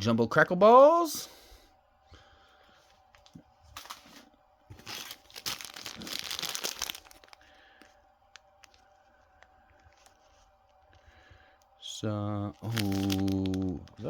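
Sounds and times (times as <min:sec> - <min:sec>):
packaging crinkling and rustling: 0:03.2 - 0:11.1, 0:12.5 - 0:14.0.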